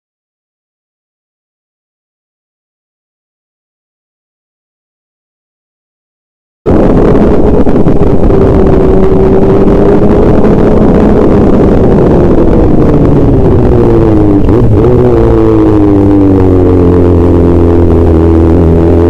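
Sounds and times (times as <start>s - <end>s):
vehicle engine running distorted: 6.7s - 19.0s.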